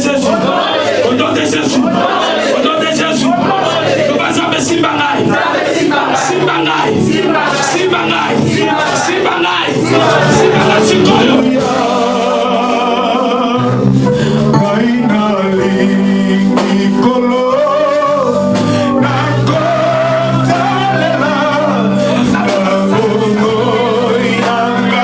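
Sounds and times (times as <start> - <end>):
person singing with vibrato: 0.0 - 25.0
sustained low chords: 9.8 - 16.9.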